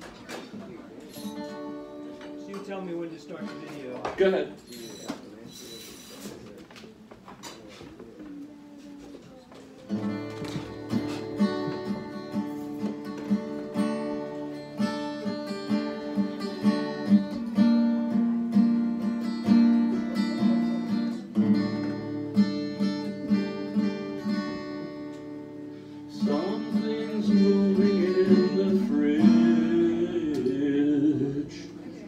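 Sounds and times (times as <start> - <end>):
acoustic guitar strumming: 1.1 - 4.3, 9.9 - 32.0.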